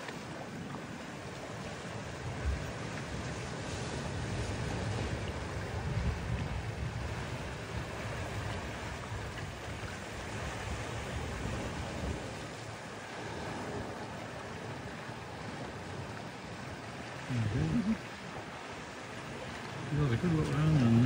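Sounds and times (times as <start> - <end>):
sea water lapping at shore: 0.0 - 21.0
wind buffeting microphone: 2.1 - 16.2
wavering voice-like sound: 17.3 - 18.0.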